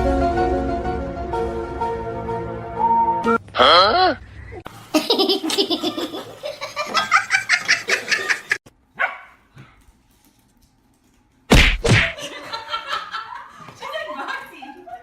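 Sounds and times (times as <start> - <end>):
people laughing: 5.0 - 8.6, 12.2 - 15.0
dog barking: 9.0 - 9.4
loud thump: 11.5 - 12.2.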